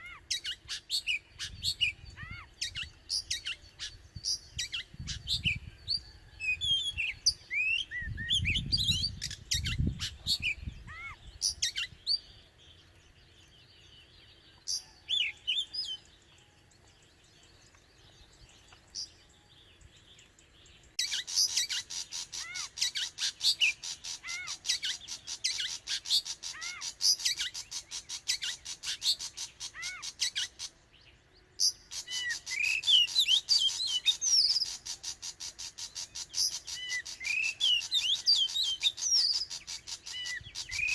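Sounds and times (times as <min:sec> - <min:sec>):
bird singing whistled phrases: 0:31.6 - 0:34.8, 0:36.2 - 0:40.9.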